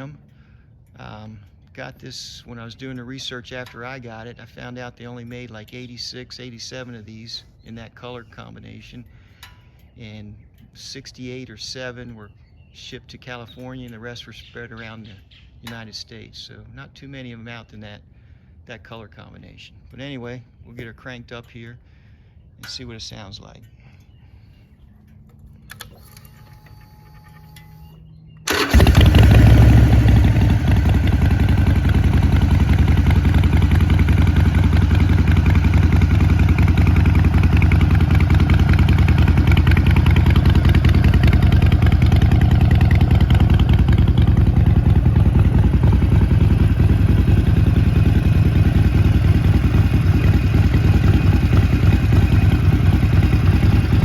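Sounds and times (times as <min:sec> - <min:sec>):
motorcycle engine starting and idling: 0:25.0 - 0:54.0.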